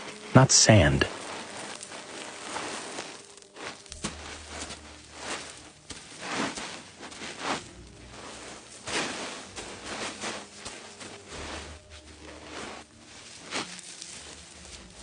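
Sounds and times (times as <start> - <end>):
small feet stepping on sand: 0.0 - 15.0.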